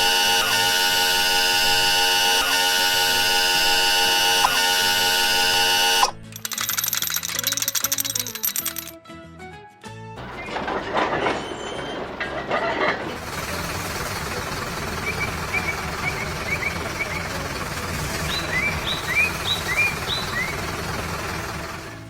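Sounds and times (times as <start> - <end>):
knocks and rattles: 6.2 - 9.0, 10.2 - 22.0
vehicle engine rumbling: 10.2 - 22.0
small birds chirping: 14.9 - 17.4, 18.0 - 20.8.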